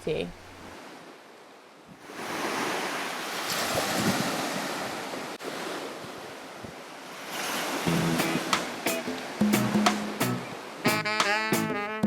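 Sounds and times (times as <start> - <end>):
surf washing on a beach: 0.5 - 10.9
wind buffeting microphone: 3.5 - 10.7
music: 7.9 - 12.0.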